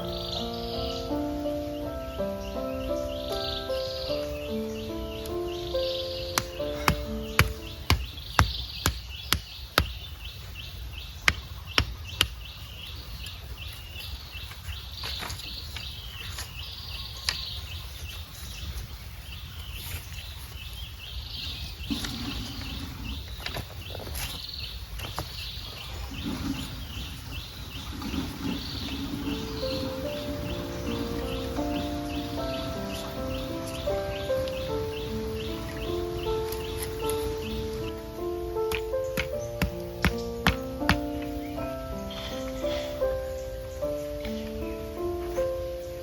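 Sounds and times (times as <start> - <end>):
small birds chirping: 0.0 - 46.0
sharp knocks: 6.4 - 10.0, 38.7 - 41.2.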